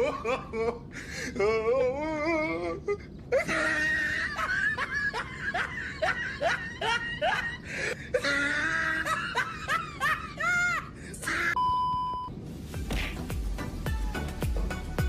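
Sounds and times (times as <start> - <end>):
high-pitched squealing laughter: 3.3 - 11.6.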